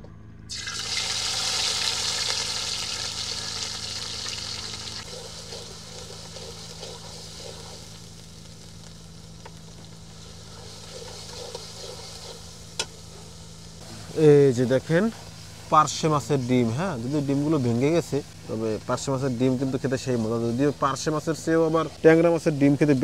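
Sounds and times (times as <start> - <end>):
chilies sizzling in hot oil: 0.5 - 23.0
metal spatula scraping a pan: 5.0 - 8.0, 10.2 - 12.9.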